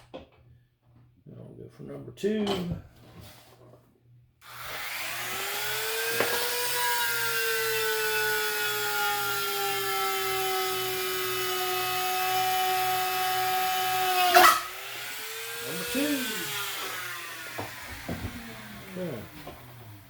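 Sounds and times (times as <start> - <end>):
electric drill boring wood: 4.4 - 20.0.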